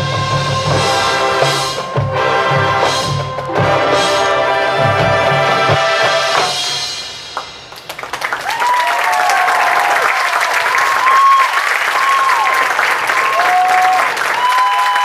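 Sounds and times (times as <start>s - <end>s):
marching band chord: 0.0s - 8.1s
audience applause: 7.7s - 15.0s
audience whooping: 7.9s - 15.0s.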